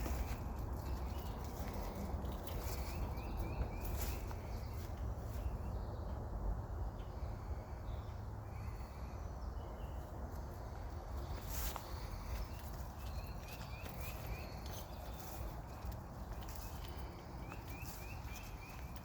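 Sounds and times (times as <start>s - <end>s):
footsteps on wet trail: 0.0s - 5.6s, 10.6s - 19.0s
bird chirps: 0.0s - 6.2s, 11.3s - 19.0s.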